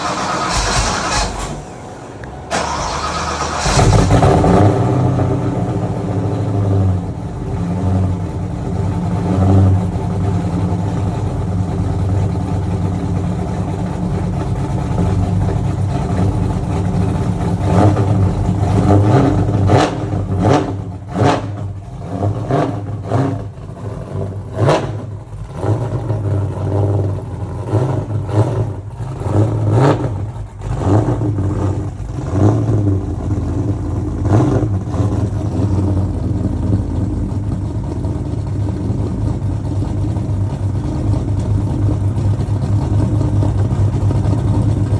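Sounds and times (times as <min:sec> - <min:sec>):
engine starting and idling: 0:00.0 - 0:07.6
engine throttle blips: 0:00.0 - 0:44.9.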